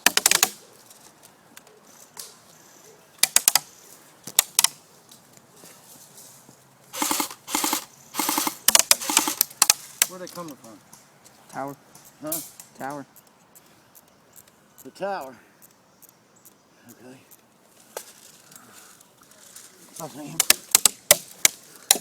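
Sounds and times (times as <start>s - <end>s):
airsoft guns firing: 0.0s - 0.6s, 7.0s - 10.2s.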